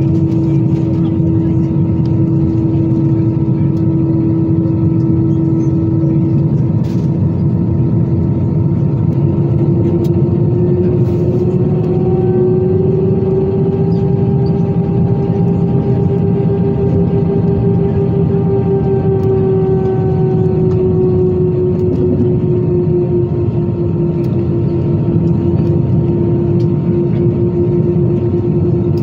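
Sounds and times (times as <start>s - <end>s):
higher engine whine: 0.0s - 29.0s
jet engine roar in cabin: 0.0s - 29.0s.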